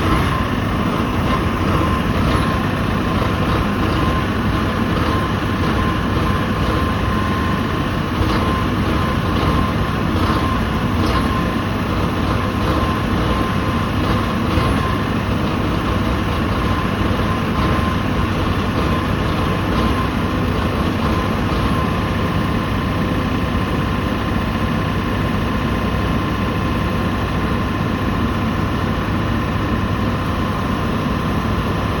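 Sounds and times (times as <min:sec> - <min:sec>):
steady whine: 0:00.0 - 0:24.6
diesel generator running: 0:00.0 - 0:32.0.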